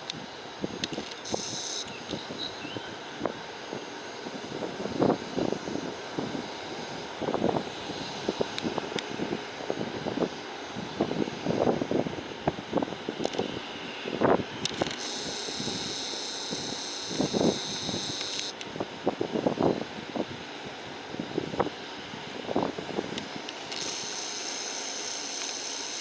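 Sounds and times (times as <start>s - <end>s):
jet engines running: 0.0s - 26.0s.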